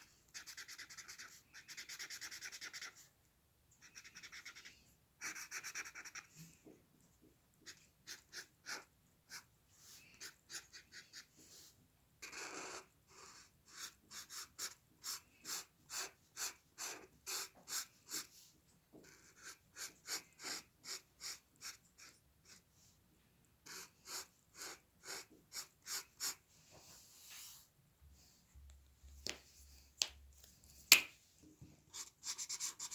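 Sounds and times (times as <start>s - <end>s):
drawing tool scratching on paper: 0.3s - 3.0s, 3.8s - 6.4s, 7.6s - 9.5s, 12.2s - 18.4s, 19.0s - 22.6s, 23.6s - 26.4s.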